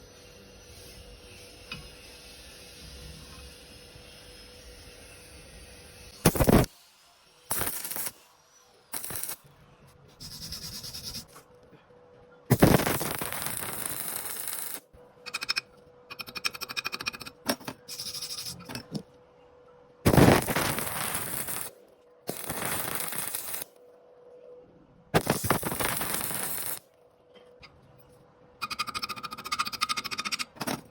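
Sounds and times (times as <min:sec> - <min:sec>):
harsh metalworking noise: 0:00.2 - 0:08.3, 0:08.9 - 0:09.5, 0:12.5 - 0:19.0, 0:20.1 - 0:23.7, 0:25.2 - 0:26.8
rapid crackling pulses: 0:12.5 - 0:14.8, 0:20.1 - 0:21.7, 0:22.3 - 0:23.6, 0:25.2 - 0:26.8.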